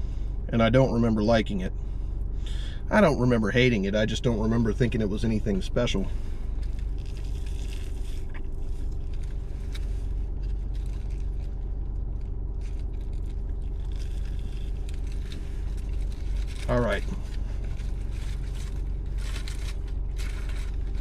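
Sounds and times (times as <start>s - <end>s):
car engine idling: 0.0s - 21.0s
clicks and rustles of eating: 6.6s - 21.0s.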